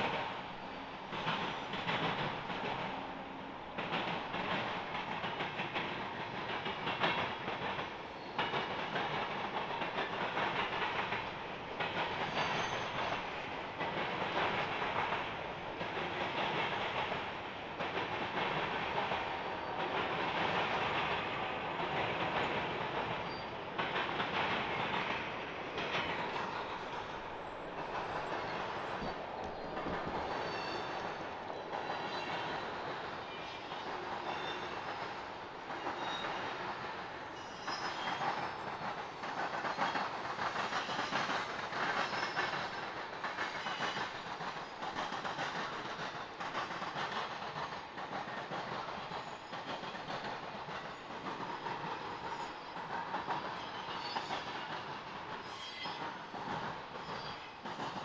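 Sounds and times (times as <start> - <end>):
train wheels clacking over crossing: 0.0 - 58.0.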